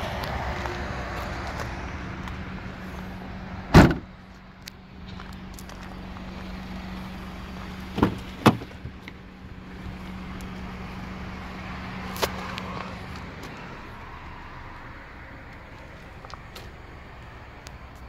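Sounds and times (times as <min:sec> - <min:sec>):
car engine idling: 0:00.0 - 0:18.0
car door clunks: 0:03.7 - 0:04.1, 0:07.9 - 0:09.2.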